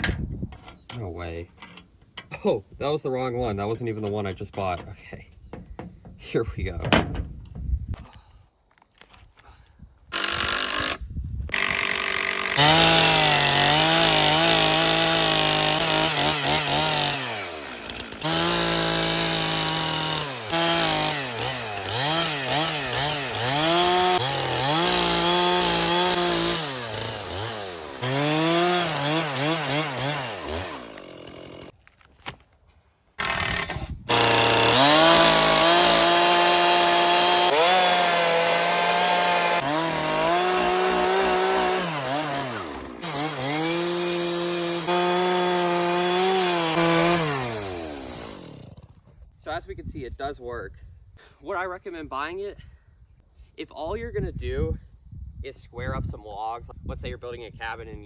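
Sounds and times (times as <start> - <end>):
chainsaw cutting through log: 10.1 - 31.8, 33.2 - 49.0.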